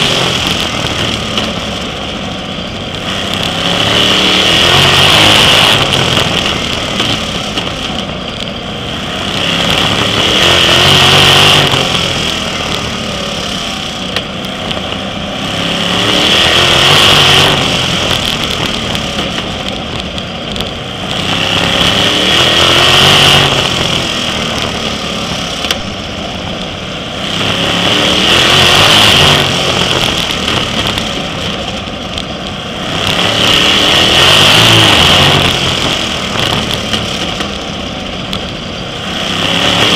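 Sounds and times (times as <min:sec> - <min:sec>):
racing car engine: 0:00.0 - 0:39.9.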